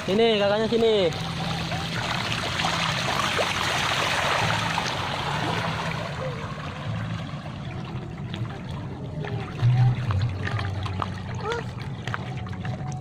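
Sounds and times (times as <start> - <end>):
water running and trickling: 0.0 - 13.0
low hum: 1.1 - 13.0.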